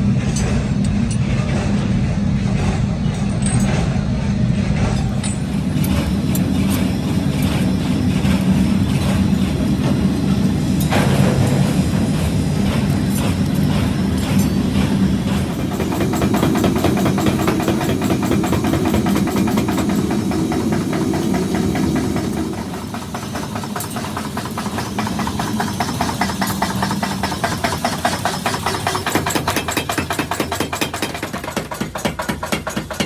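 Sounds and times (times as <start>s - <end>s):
workshop machine humming: 0.0s - 33.0s
rapid even knocking: 12.7s - 33.0s.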